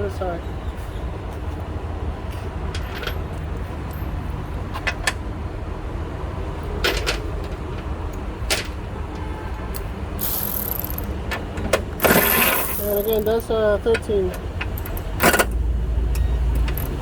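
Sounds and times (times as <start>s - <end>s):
short rattling burst: 10.2s - 11.2s, 12.0s - 13.4s
metallic clicks of hand tools: 10.2s - 11.4s, 12.0s - 13.5s, 14.6s - 17.0s.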